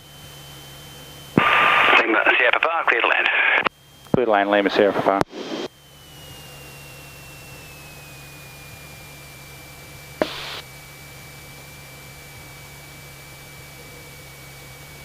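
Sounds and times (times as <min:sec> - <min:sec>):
faint aircraft engine drone: 0:00.0 - 0:15.0
radio click with burst of hiss: 0:01.4 - 0:03.7, 0:10.2 - 0:10.6
radio intercom hiss: 0:01.4 - 0:03.7, 0:04.4 - 0:05.7, 0:10.2 - 0:10.6
thin whine falling in pitch: 0:03.7 - 0:15.0.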